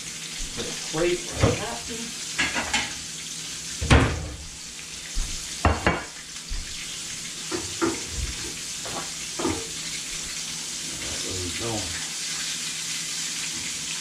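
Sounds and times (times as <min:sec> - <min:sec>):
fish frying in hot oil: 0:00.0 - 0:14.0
kitchen knocks and clatters: 0:00.5 - 0:01.8, 0:02.4 - 0:03.0, 0:03.8 - 0:04.5, 0:05.2 - 0:06.7, 0:07.5 - 0:09.8.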